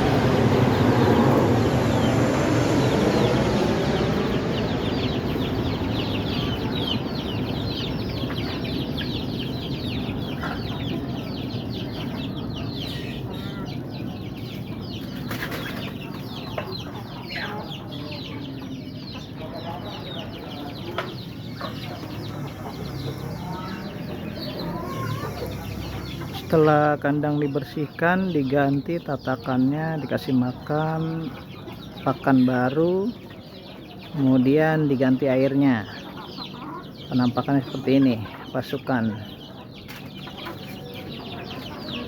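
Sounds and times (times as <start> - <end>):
low rumble: 0.0 - 8.2
chicks peeping: 0.0 - 42.0.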